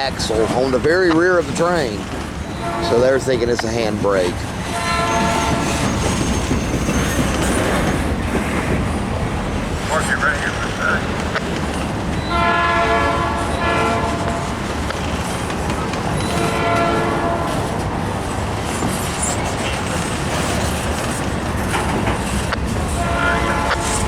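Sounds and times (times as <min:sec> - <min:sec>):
freight train rumbling and clattering: 0:00.0 - 0:24.0
locomotive horn blasts: 0:02.5 - 0:03.2, 0:04.6 - 0:06.0, 0:12.2 - 0:14.7, 0:16.2 - 0:17.8, 0:22.9 - 0:24.0.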